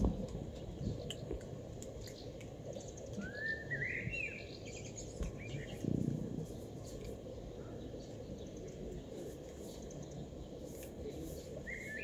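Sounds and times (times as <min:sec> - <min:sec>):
small bird calling: 0:02.0 - 0:05.8, 0:06.4 - 0:12.0.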